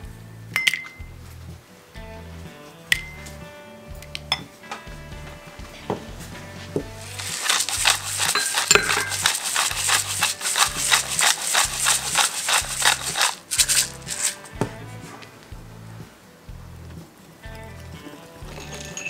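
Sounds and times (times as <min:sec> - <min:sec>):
whisk scraping ceramic bowl: 0:07.0 - 0:14.6.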